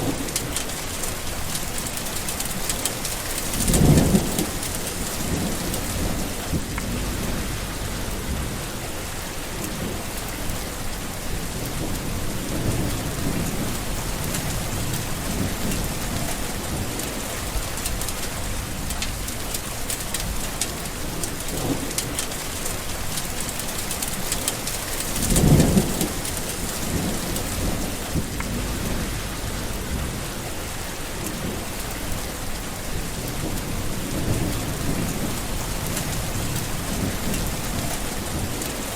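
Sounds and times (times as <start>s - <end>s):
steady rain: 0.0s - 38.9s
rolling thunder: 3.4s - 10.2s, 11.2s - 19.6s, 24.1s - 38.9s.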